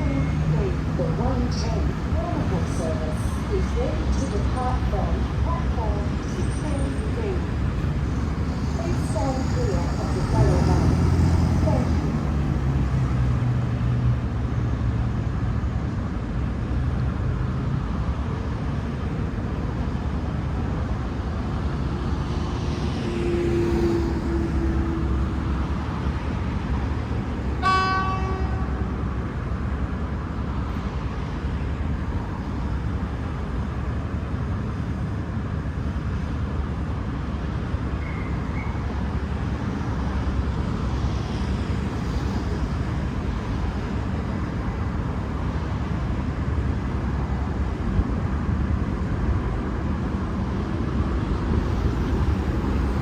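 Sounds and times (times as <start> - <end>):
diesel engine rumble: 0.0 - 27.6, 36.4 - 53.0
train horn toot: 27.6 - 29.0.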